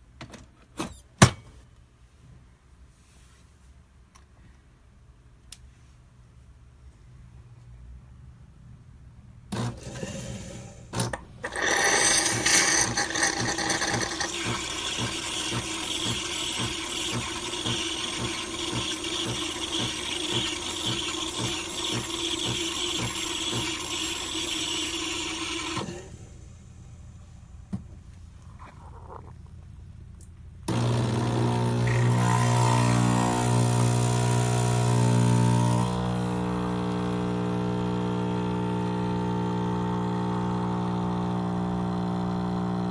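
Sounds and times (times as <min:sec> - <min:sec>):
espresso machine pump humming: 0:11.4 - 0:27.8, 0:30.7 - 0:42.9.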